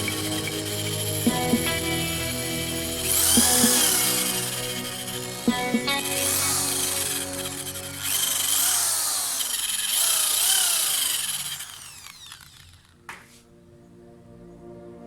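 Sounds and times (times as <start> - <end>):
background music: 0.0 - 8.9, 13.4 - 15.0
power tool grinding: 0.0 - 13.0.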